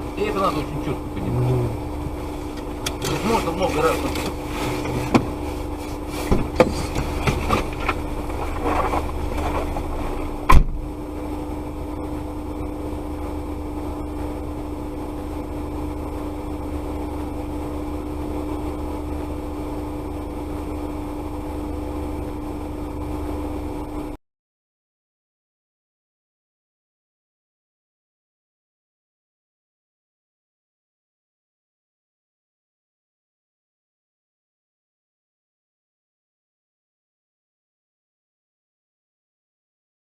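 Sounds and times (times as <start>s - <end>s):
car engine drone from inside: 0.0s - 24.2s
loud sharp bang: 10.5s - 10.9s.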